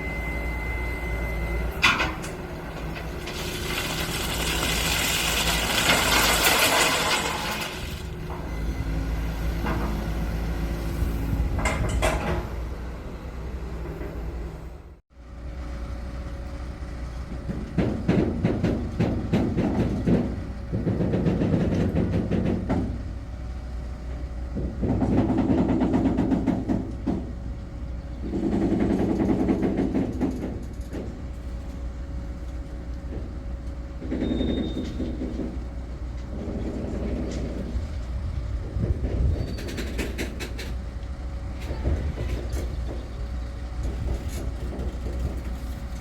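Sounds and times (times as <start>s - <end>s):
train wheels clattering over track: 11.4s - 12.6s, 17.3s - 23.2s, 24.5s - 31.9s, 32.5s - 46.0s.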